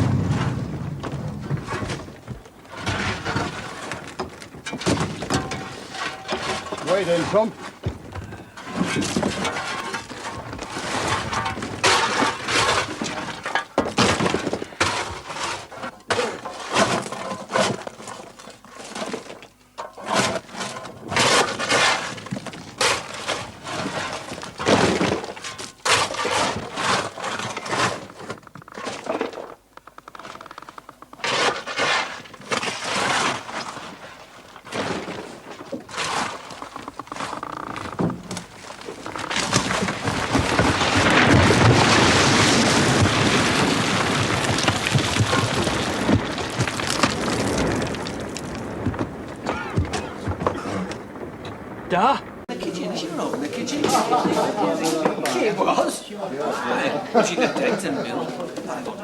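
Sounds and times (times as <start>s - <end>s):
smashing and crashing: 0.0s - 29.7s, 31.2s - 56.0s
glass breaking and shattering: 4.6s - 7.5s.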